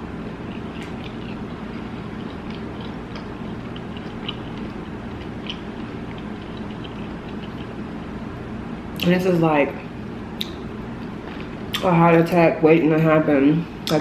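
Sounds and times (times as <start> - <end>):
steady low hum: 0.0 - 14.0
person chewing food: 0.2 - 8.1.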